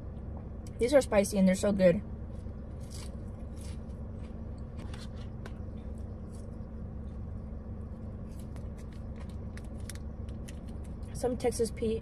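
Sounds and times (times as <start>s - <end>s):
low hum in car cabin: 0.0s - 12.0s
chewing crisp french fry: 2.5s - 7.4s, 8.0s - 11.1s.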